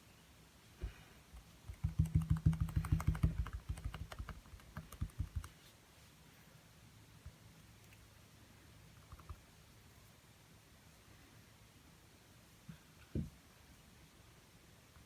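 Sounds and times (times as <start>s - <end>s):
brush tapping on canvas: 1.7s - 5.6s.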